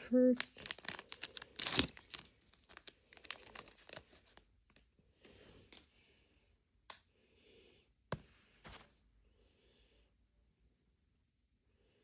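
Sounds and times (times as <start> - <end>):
plastic and paper crinkling: 0.0 - 4.9.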